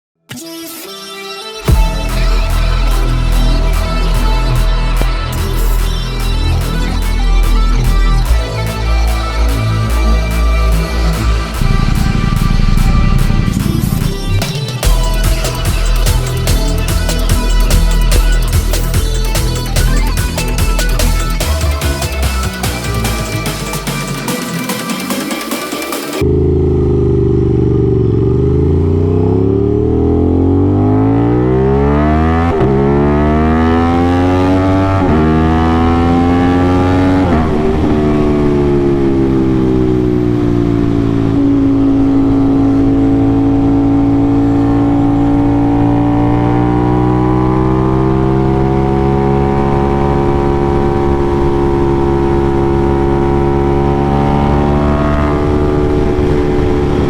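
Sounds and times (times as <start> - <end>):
motorcycle engine accelerating: 1.7 - 25.1, 26.2 - 57.0.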